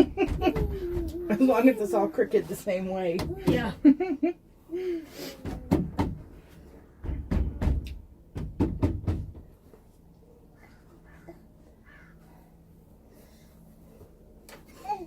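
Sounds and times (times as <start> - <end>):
wooden boards knocking: 5.4 - 6.4, 7.0 - 9.6.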